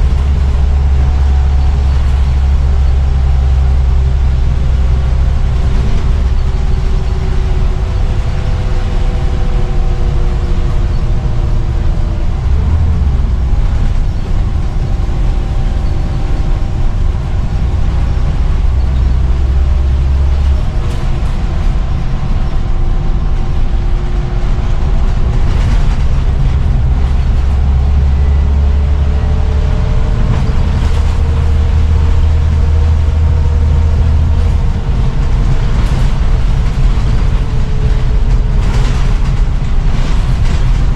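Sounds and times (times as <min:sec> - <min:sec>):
bus diesel engine drone: 0:00.0 - 0:40.9.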